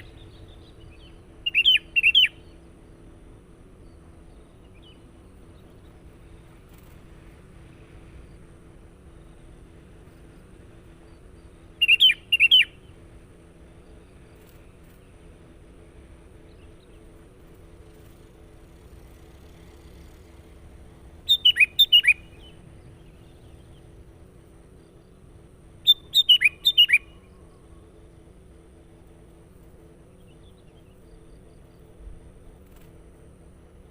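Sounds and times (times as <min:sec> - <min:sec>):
faint steady background hum: 0:00.0 - 0:33.9
bird whistling falling notes: 0:21.3 - 0:22.3, 0:25.9 - 0:27.1.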